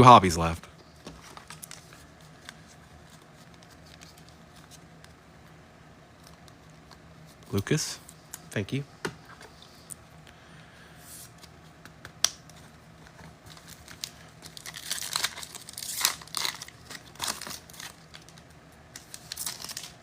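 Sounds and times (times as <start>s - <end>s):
wrapper tearing and crinkling: 13.5s - 18.4s, 19.0s - 20.0s.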